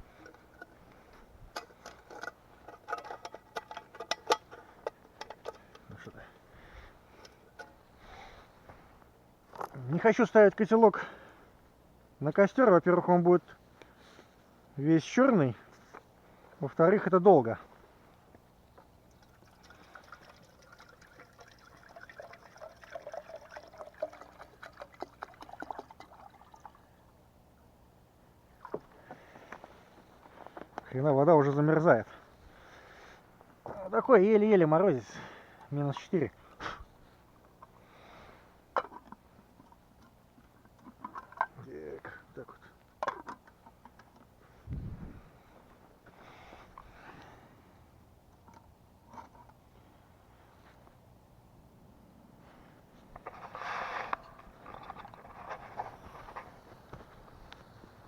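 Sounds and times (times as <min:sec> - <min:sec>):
water pouring into a pot: 0:19.3 - 0:26.8.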